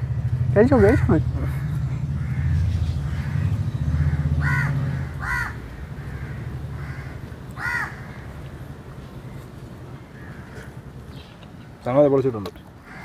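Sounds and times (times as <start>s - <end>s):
low rumble: 0.0s - 7.4s
bird calling harshly: 0.2s - 8.4s.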